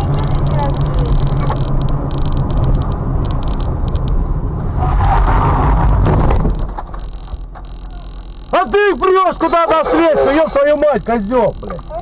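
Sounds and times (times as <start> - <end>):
road noise: 0.0 - 12.0
vehicle engine rumble: 0.0 - 12.0.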